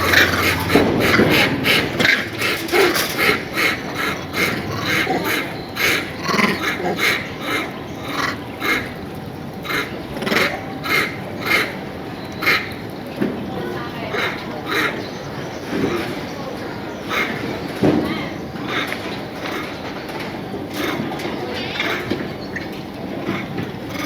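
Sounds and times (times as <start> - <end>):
animal calling rapidly: 0.0 - 13.0, 13.6 - 19.8.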